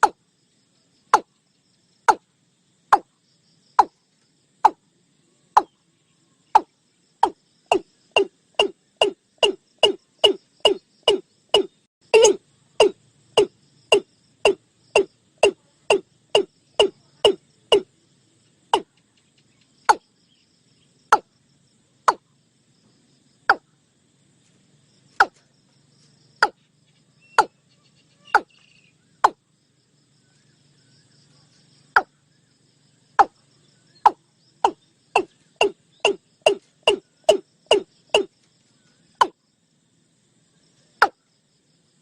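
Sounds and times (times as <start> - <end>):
bird calling sharp notes: 6.6 - 17.9, 27.2 - 29.4, 34.6 - 38.3.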